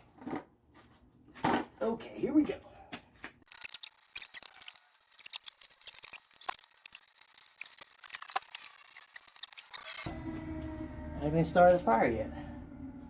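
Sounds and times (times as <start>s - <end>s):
metal clicks and scrapes: 3.5s - 10.1s.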